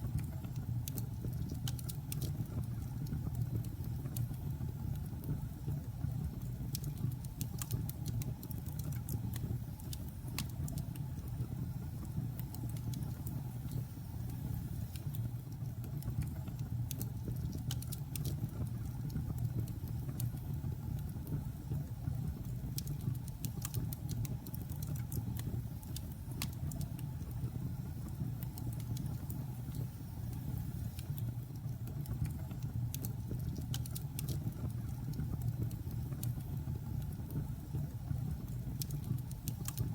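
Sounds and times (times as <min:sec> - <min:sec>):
logs crackling and popping: 0:22.7 - 0:27.1, 0:31.0 - 0:37.4.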